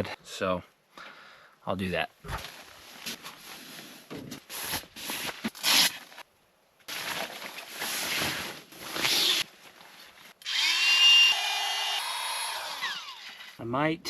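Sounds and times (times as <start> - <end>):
sleeping pad rustling and crinkling: 2.2 - 6.3, 6.9 - 10.4.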